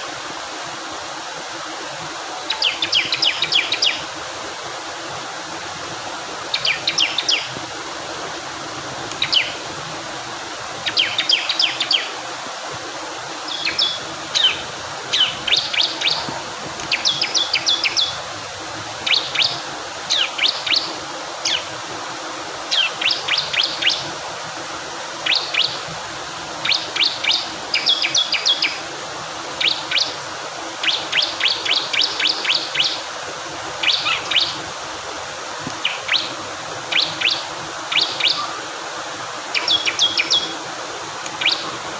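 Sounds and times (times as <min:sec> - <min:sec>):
water flowing: 0:00.0 - 0:41.9
bird high chirps: 0:02.5 - 0:04.0, 0:09.2 - 0:09.6, 0:13.5 - 0:16.3, 0:16.9 - 0:18.2, 0:33.8 - 0:34.6, 0:35.8 - 0:36.3, 0:36.9 - 0:38.6, 0:39.5 - 0:40.6, 0:41.4 - 0:41.8.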